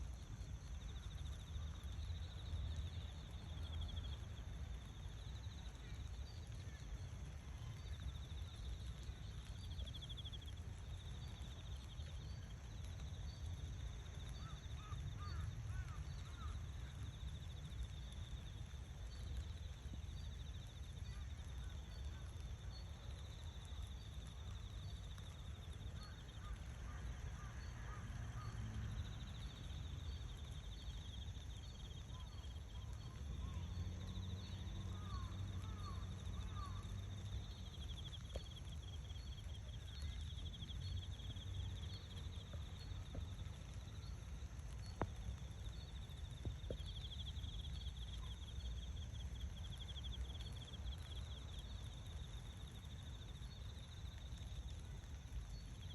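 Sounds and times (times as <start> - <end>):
low continuous rumble: 0.0 - 55.8
faint bird chirps: 19.0 - 49.0.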